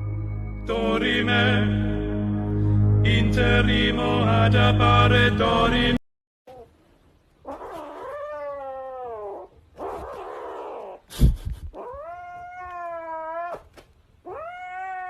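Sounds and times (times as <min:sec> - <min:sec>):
cat yowling: 0:07.5 - 0:11.0, 0:11.8 - 0:15.0.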